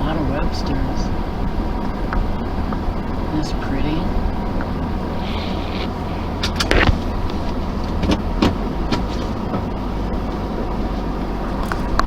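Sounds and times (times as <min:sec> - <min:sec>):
wind and road rumble: 0:00.0 - 0:12.0.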